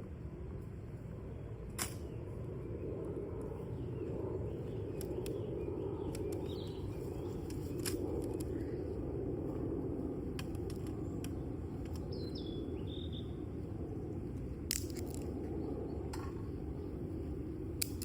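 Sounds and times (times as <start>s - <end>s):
campfire burning and crackling: 4.1s - 15.9s.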